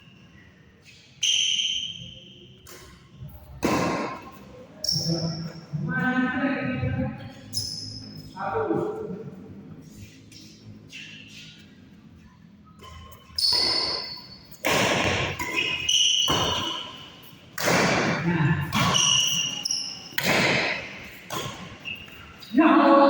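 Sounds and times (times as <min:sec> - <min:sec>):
shoes squeaking on court: 0:00.0 - 0:03.0, 0:04.0 - 0:05.7, 0:07.2 - 0:09.1, 0:09.8 - 0:18.0, 0:18.6 - 0:23.0
racket striking shuttlecock: 0:03.6 - 0:04.4, 0:12.8 - 0:22.2.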